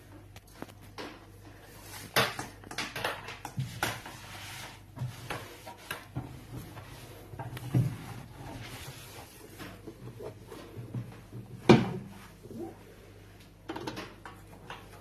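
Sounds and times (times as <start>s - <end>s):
cloth rubbing inside microwave: 3.6s - 13.2s.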